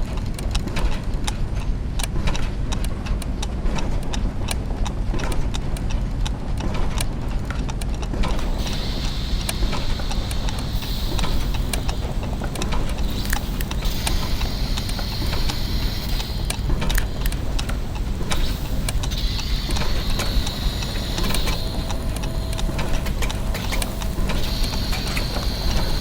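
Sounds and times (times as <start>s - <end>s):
clockwork ticks and clicks: 0.0s - 26.0s
low mechanical rumble: 8.4s - 26.0s
high mechanical squeak: 18.4s - 26.0s.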